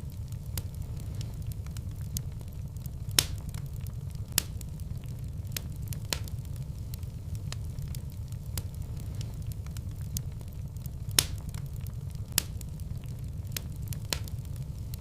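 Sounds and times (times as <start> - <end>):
fire popping: 0.0 - 15.0
low rumble of flames: 0.0 - 15.0.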